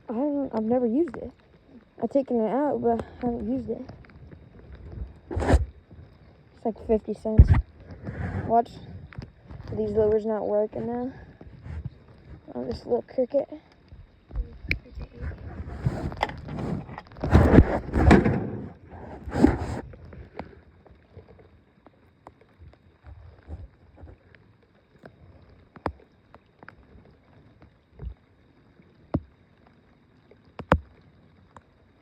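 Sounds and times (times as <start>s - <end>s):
loud rustling and knocks: 15.2s - 19.9s.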